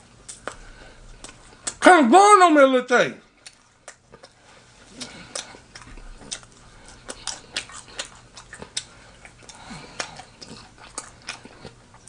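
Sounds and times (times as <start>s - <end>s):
person chewing: 0.1s - 1.8s, 3.3s - 12.0s
wet mouth clicks: 3.4s - 8.9s.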